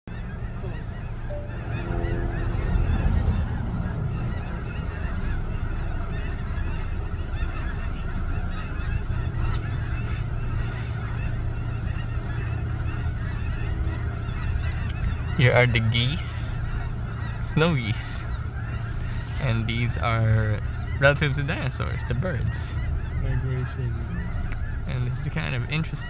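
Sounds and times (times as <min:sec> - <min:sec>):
geese honking: 0:00.1 - 0:26.0
low rumble: 0:00.3 - 0:07.3.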